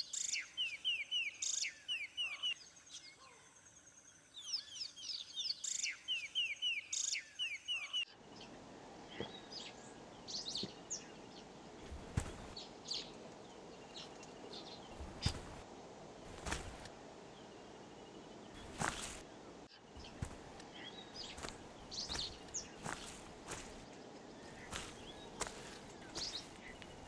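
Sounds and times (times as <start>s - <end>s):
short bird calls: 0.0s - 3.5s, 11.8s - 12.6s, 16.3s - 16.9s, 18.6s - 19.2s, 21.2s - 23.8s, 24.4s - 27.0s
birds chirping: 0.0s - 8.1s, 11.0s - 13.1s, 14.6s - 15.6s, 16.3s - 16.9s, 18.1s - 27.0s.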